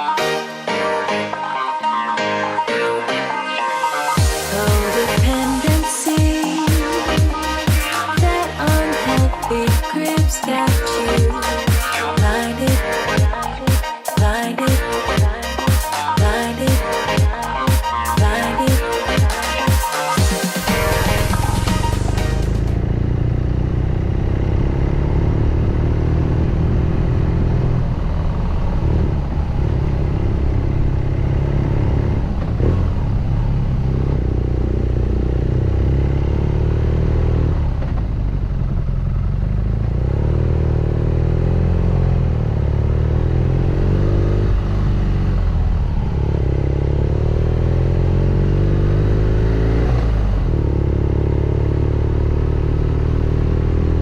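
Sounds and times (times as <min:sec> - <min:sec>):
motorcycle engine running: 0:20.7 - 0:54.0.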